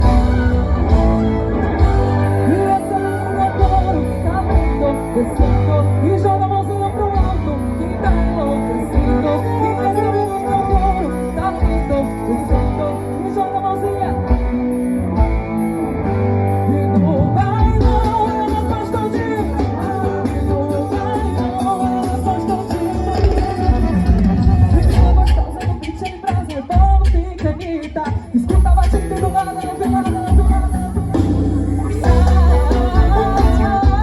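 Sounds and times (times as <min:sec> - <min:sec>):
heavy bass line: 0:00.0 - 0:13.4, 0:30.3 - 0:34.0
person singing: 0:00.0 - 0:15.0, 0:16.5 - 0:34.0
guitar: 0:00.0 - 0:34.0.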